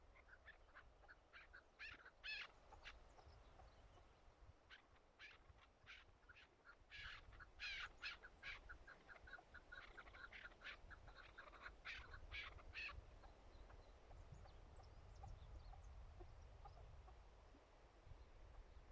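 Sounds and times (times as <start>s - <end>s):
partridge calling: 0.1s - 16.9s.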